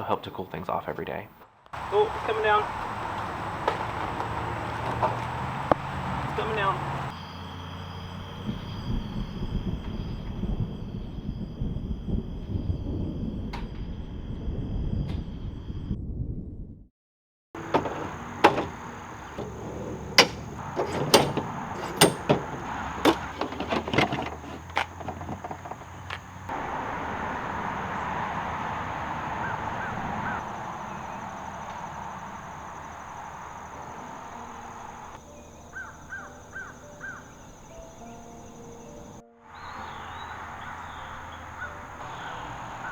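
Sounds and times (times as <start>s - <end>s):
heavy rain: 26.5s - 31.3s
bird calling: 29.4s - 32.6s, 33.7s - 42.9s.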